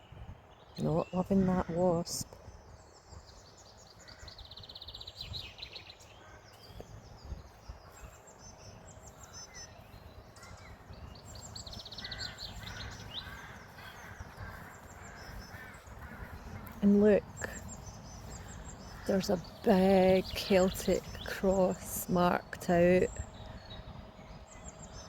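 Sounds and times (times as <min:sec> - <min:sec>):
songbird trills: 0:00.0 - 0:25.0
low background rumble: 0:06.2 - 0:25.0.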